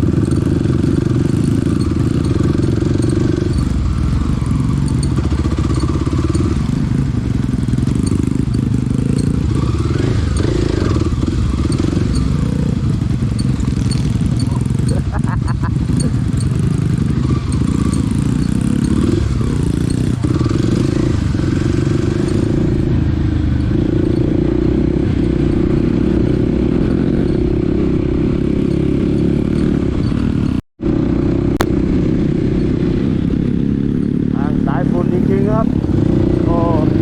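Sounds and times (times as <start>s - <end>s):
dirt bike engine running: 0.0s - 37.0s.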